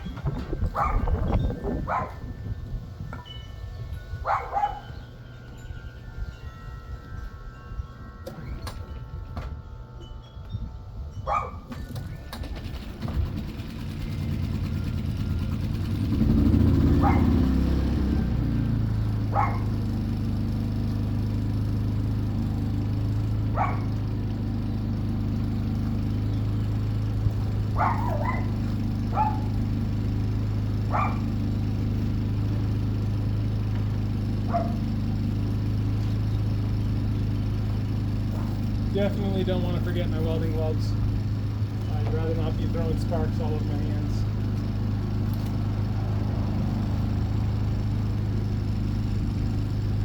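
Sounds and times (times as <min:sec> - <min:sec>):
generator engine running: 0:00.0 - 0:50.0
dog barking: 0:00.7 - 0:01.1, 0:01.8 - 0:02.2, 0:04.2 - 0:05.0, 0:11.3 - 0:11.7, 0:17.0 - 0:17.4, 0:19.3 - 0:19.8, 0:23.5 - 0:24.0, 0:27.8 - 0:29.6, 0:30.9 - 0:31.4, 0:34.5 - 0:34.8, 0:38.3 - 0:38.7.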